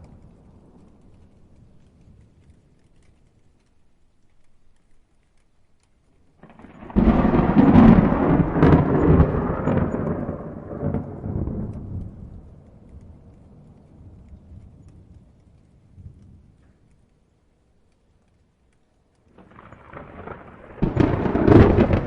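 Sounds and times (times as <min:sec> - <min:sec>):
thunderclap with sharp cracks: 0:06.4 - 0:15.4, 0:19.3 - 0:22.0.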